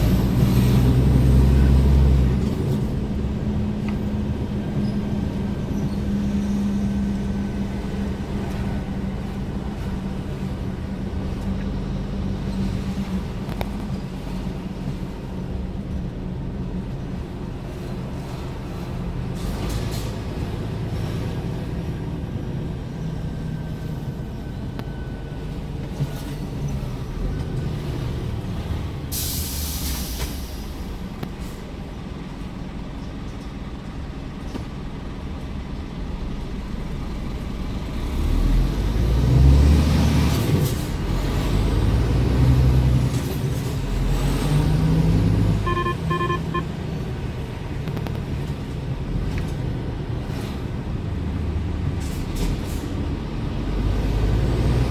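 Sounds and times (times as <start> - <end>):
air brake hiss: 29.1 - 30.9
electronic beeps: 45.6 - 46.7.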